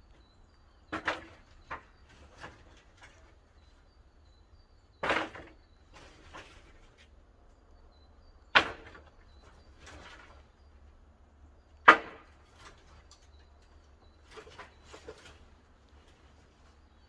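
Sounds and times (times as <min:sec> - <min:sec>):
firewood knocking and clattering: 0:00.9 - 0:03.8, 0:04.9 - 0:07.2, 0:11.8 - 0:17.0.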